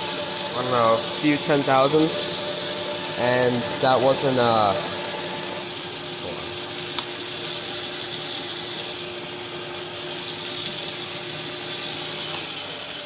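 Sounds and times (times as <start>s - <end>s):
metal lathe gears whirring: 0.0s - 13.0s.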